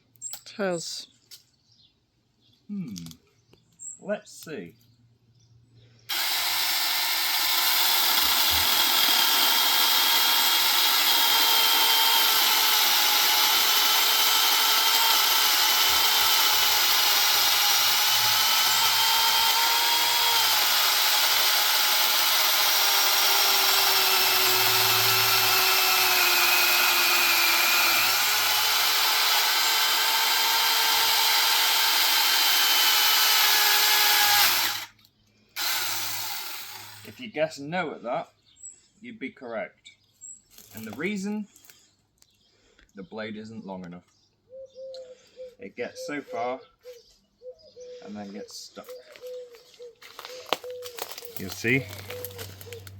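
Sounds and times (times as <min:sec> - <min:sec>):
chainsaw cutting log: 0:06.1 - 0:34.9, 0:35.6 - 0:37.2, 0:50.6 - 0:52.9.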